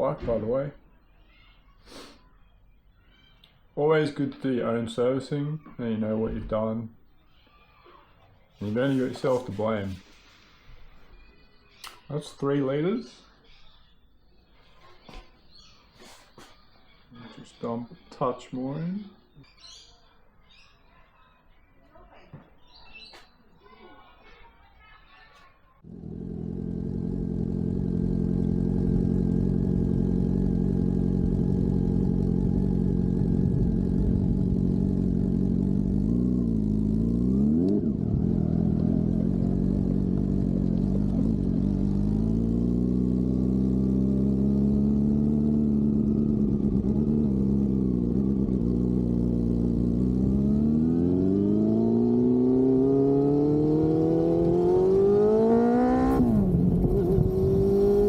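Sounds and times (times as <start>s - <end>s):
motorcycle engine running: 25.8s - 58.0s.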